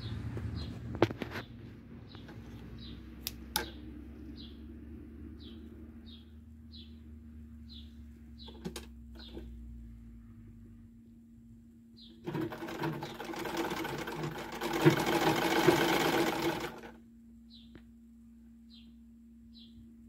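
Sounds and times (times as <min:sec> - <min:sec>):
faint steady hum: 0:00.0 - 0:20.0
small bird chirping: 0:05.4 - 0:09.6, 0:17.5 - 0:17.8, 0:18.7 - 0:19.8.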